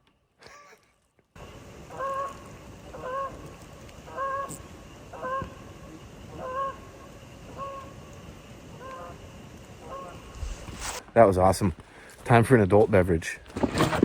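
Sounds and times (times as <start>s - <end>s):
geese honking: 1.5s - 11.0s.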